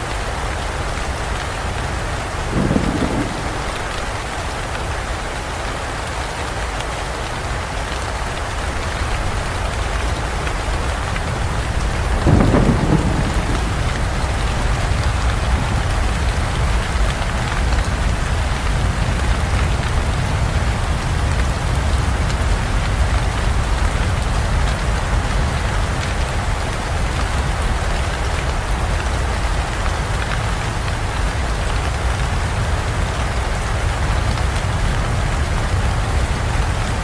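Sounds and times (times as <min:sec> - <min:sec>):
heavy rain falling: 0:00.0 - 0:37.0
thunder rumble: 0:01.0 - 0:05.3, 0:09.0 - 0:25.2.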